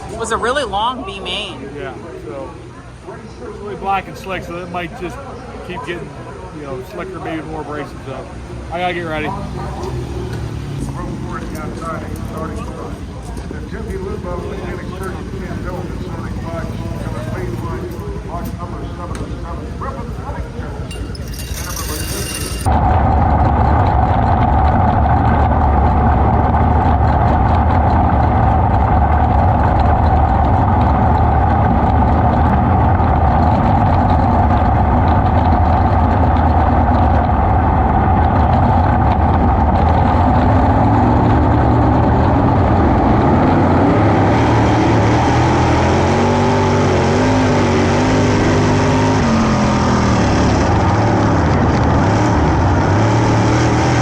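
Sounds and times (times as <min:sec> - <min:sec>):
race car engine running: 0:06.8 - 0:54.0.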